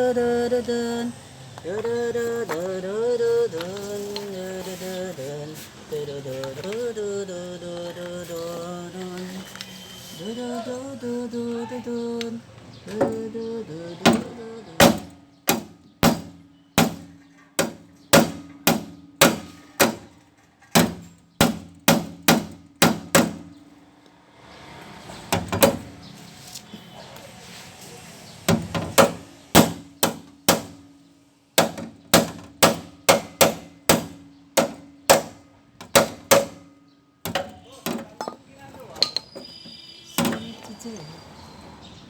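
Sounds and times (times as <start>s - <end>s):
hammer beating sheet metal: 14.1s - 20.1s, 20.7s - 23.5s, 28.5s - 30.9s, 31.6s - 36.7s.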